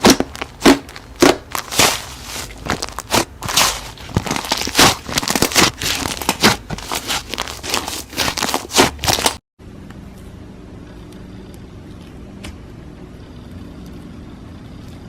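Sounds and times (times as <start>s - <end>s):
slime squeezed by hand: 0.0s - 9.4s
steady hum: 0.0s - 15.0s.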